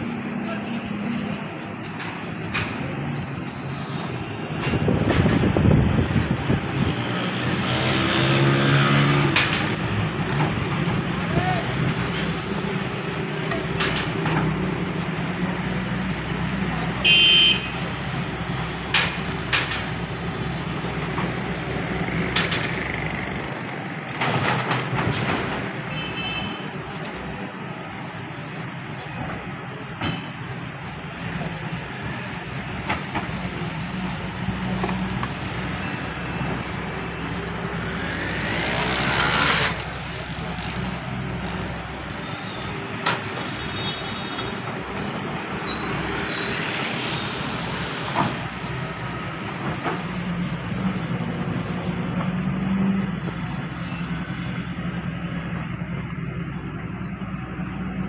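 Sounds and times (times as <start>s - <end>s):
construction machinery engines: 0.0s - 58.0s
sharp knocks and clanks: 1.2s - 3.7s, 4.5s - 6.3s, 7.7s - 11.1s, 18.8s - 20.2s, 22.1s - 23.3s, 24.1s - 25.9s.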